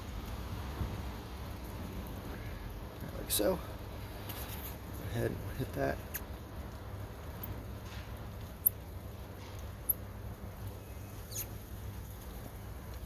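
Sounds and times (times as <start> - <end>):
high squeaks of wiping fiber: 11.2 - 11.6.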